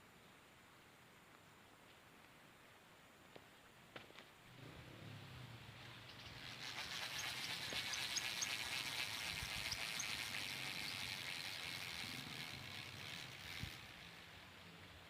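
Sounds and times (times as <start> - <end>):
fishing reel whirring: 5.8 - 14.8.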